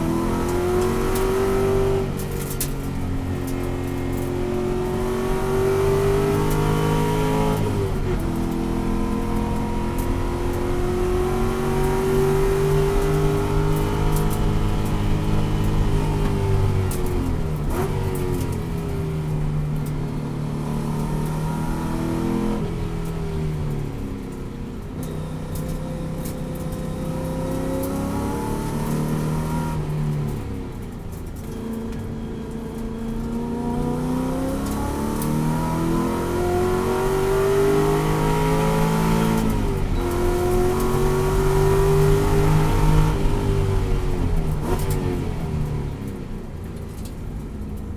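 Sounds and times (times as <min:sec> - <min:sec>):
race car engine revving: 0:00.0 - 0:19.4, 0:32.6 - 0:45.7.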